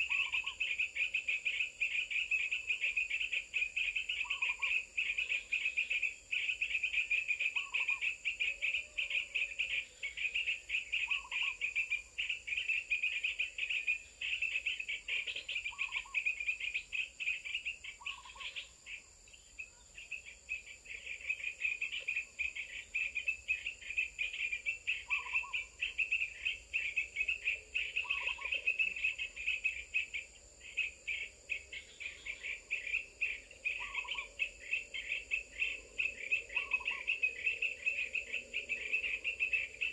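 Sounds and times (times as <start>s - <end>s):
insects and birds chirping: 0.0s - 39.9s.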